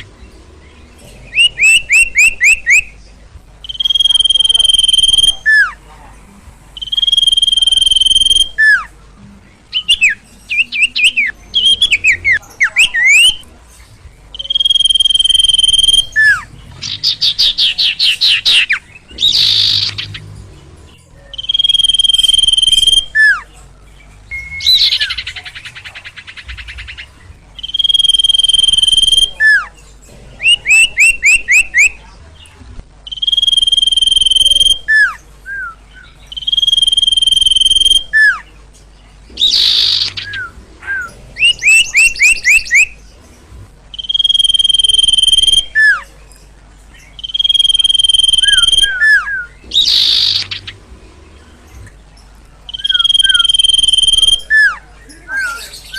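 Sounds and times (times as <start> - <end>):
bird trills: 0.0 - 3.0, 3.6 - 5.8, 6.7 - 9.0, 9.7 - 32.1, 33.0 - 55.9
bird whistling: 1.3 - 3.0, 3.6 - 5.8, 6.8 - 8.9, 9.7 - 13.4, 14.3 - 20.2, 21.2 - 23.5, 24.3 - 29.7, 30.4 - 32.1, 33.0 - 38.5, 39.3 - 43.0, 43.9 - 46.2, 47.1 - 50.8, 52.6 - 55.9.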